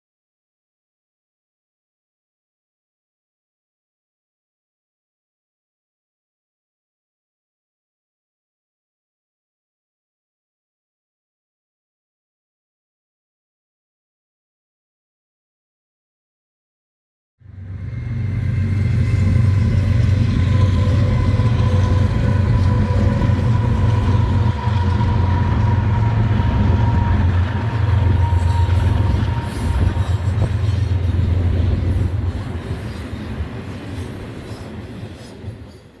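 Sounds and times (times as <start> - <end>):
train passing with low rumble: 17.4 - 36.0.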